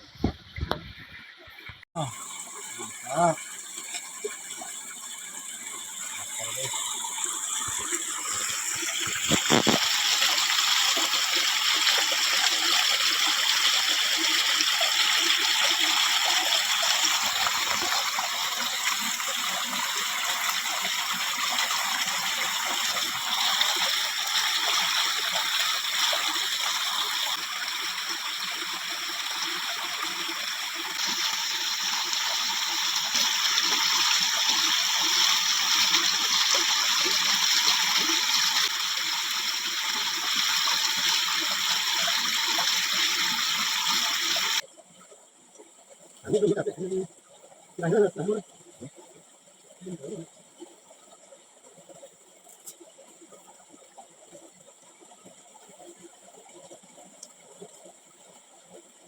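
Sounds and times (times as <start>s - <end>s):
food sizzling in hot oil: 6.4s - 12.3s, 23.6s - 44.6s.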